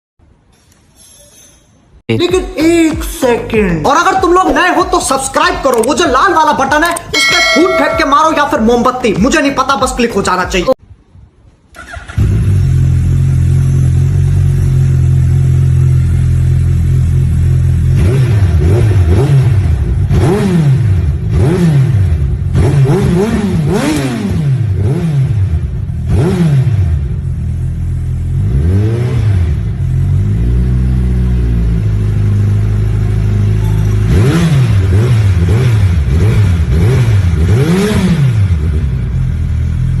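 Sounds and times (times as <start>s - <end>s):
motorcycle engine revving: 11.8s - 40.0s.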